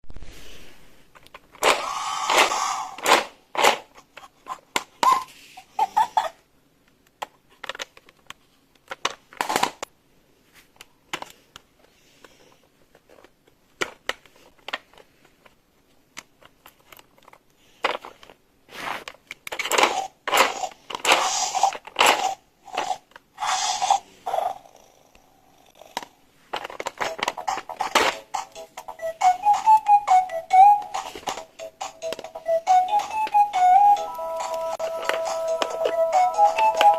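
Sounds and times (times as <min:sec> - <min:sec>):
plastic toy pieces clicking: 0:06.9 - 0:09.9, 0:19.2 - 0:23.2, 0:25.9 - 0:28.9.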